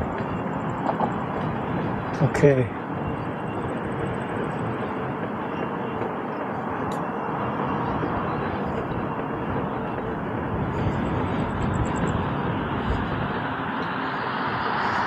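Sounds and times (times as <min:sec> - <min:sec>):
wind rush: 0:00.0 - 0:15.0.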